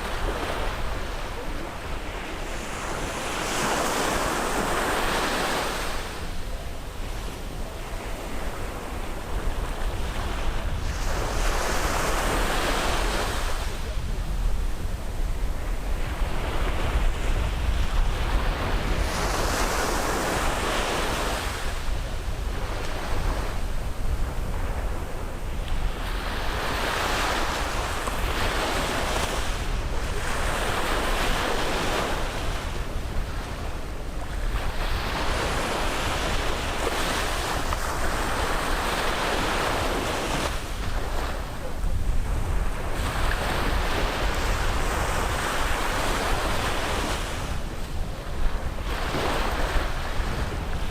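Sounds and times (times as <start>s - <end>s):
sea waves breaking on beach: 0.0s - 50.9s
wind rumble on microphone: 0.0s - 50.9s.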